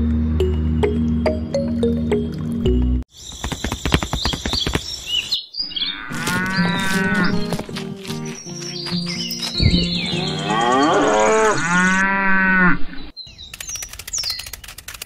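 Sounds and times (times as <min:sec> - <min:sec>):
cows mooing: 0:05.8 - 0:07.6, 0:10.1 - 0:13.0
sharp clicks: 0:13.4 - 0:15.0.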